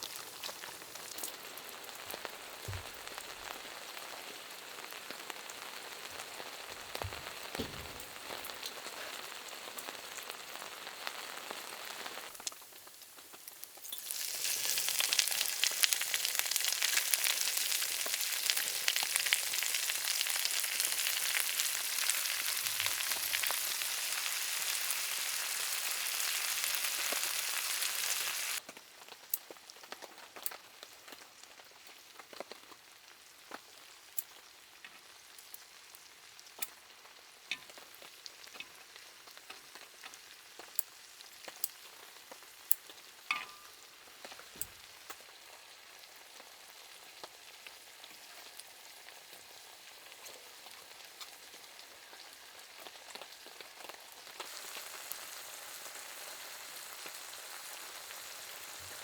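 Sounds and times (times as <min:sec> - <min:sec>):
rain pattering: 0:00.0 - 0:24.0
food sizzling in a hot pan: 0:00.0 - 0:59.0.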